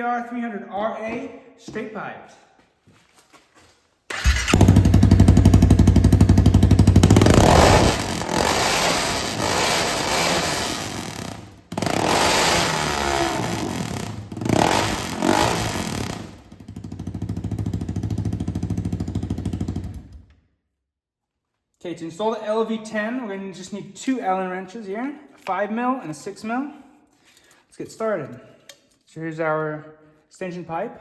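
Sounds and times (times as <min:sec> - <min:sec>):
loud motorcycle engine revving: 0:04.1 - 0:20.2.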